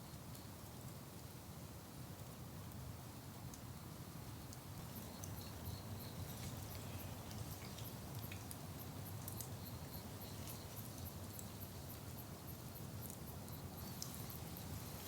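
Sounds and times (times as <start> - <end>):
light hiss: 0.0 - 15.0
faint high ticks: 4.5 - 14.4.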